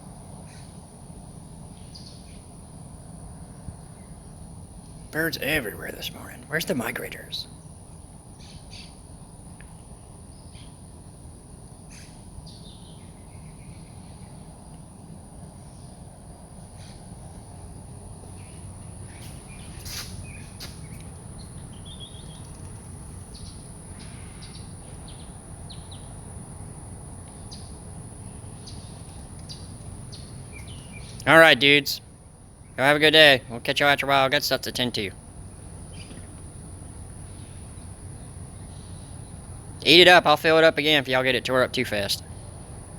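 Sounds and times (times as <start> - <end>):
steady high-pitched whine: 0.9 - 42.9
low outdoor rumble: 2.8 - 8.2
birds chirping: 5.2 - 7.6, 18.3 - 26.1, 28.4 - 32.0, 38.6 - 42.2.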